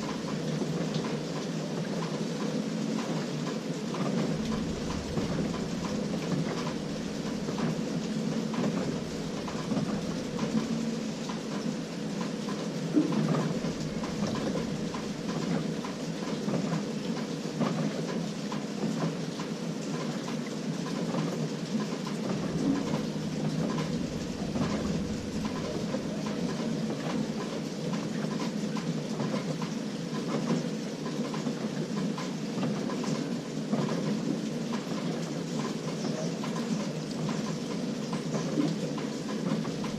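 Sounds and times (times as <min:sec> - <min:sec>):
washing machine churning: 0:00.0 - 0:39.9
faint steady hum: 0:03.8 - 0:16.6, 0:22.2 - 0:28.3.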